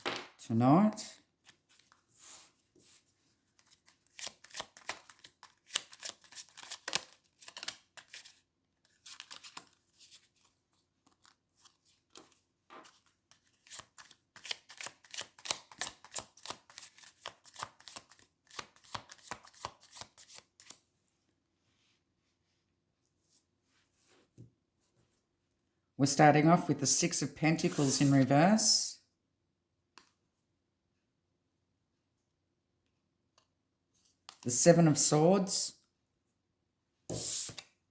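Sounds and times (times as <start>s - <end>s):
cards being shuffled: 3.6s - 10.3s, 11.0s - 20.8s, 27.6s - 28.3s.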